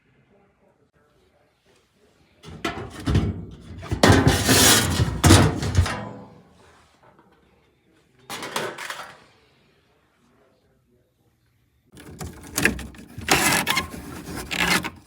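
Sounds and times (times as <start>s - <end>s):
knocks rattles and scraping: 2.4s - 6.4s, 12.0s - 15.0s.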